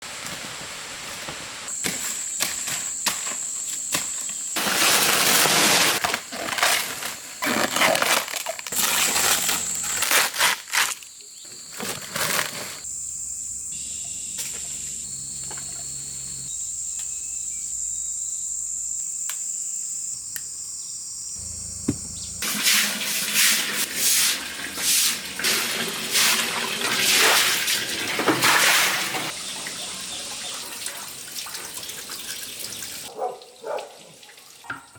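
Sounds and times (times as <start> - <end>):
insects buzzing: 1.7 - 25.6, 29.2 - 33.2.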